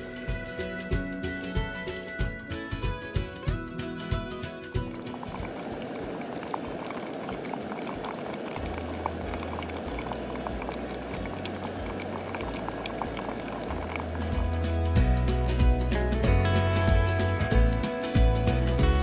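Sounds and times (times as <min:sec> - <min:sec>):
liquid bubbling in a pot: 0:05.0 - 0:14.6.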